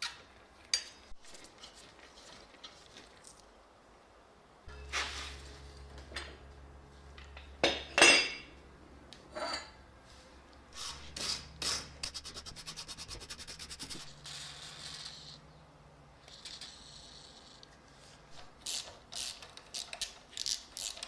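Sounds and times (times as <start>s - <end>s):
metal parts scraping and clinking: 4.7s - 6.4s
steady rasp: 10.8s - 15.3s
ratcheting clicks: 18.6s - 21.0s.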